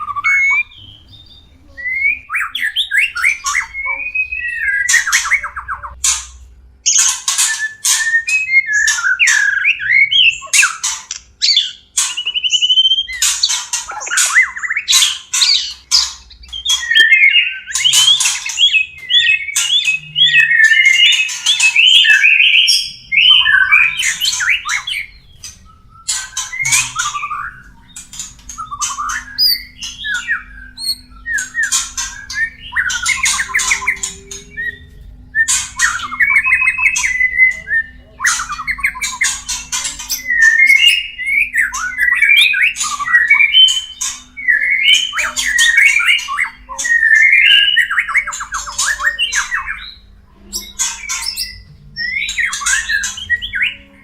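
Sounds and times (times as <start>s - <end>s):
bird calls with scratchy rasps: 13.0s - 50.0s.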